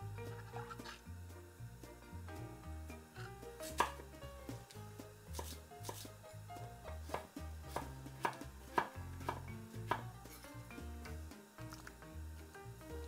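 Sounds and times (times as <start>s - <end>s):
soft background music: 0.0s - 13.0s
knife chopping on cutting board: 3.2s - 4.1s, 5.3s - 6.2s, 6.9s - 10.4s.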